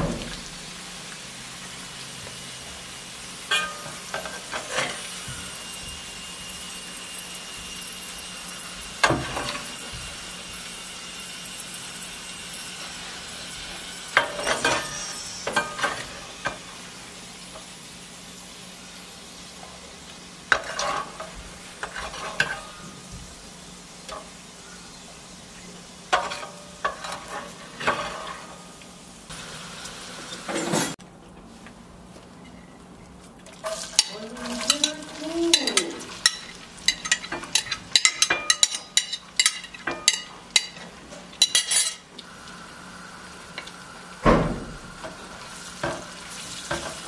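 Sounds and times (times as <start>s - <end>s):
liver sizzling in oil: 0.0s - 31.0s, 33.5s - 47.0s
metal spoon scraping a pan: 3.5s - 5.2s, 20.5s - 22.9s, 26.1s - 28.6s, 33.6s - 42.1s.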